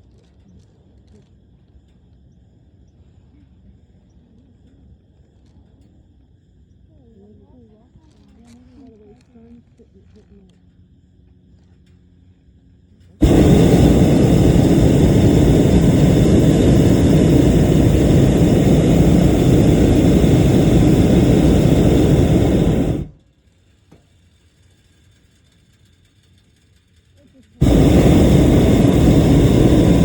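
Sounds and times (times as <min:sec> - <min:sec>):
loud low rushing noise: 0:13.2 - 0:23.1, 0:27.6 - 0:30.0.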